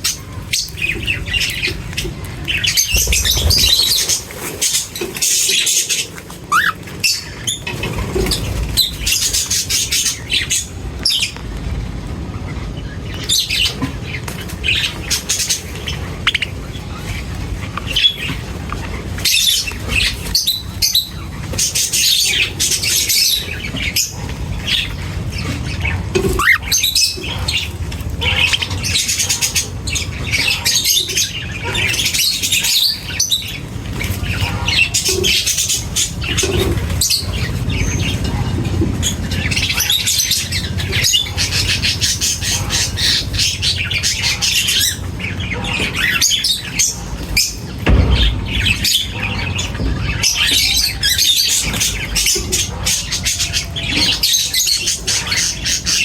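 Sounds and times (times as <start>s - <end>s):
flock of birds chirping: 0.0s - 56.0s
steady low rumble: 47.6s - 52.3s.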